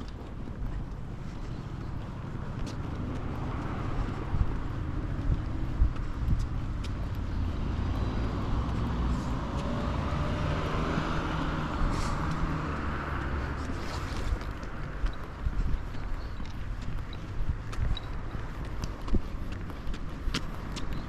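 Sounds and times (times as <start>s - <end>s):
low traffic rumble: 0.0s - 21.0s
car passing: 1.5s - 15.1s.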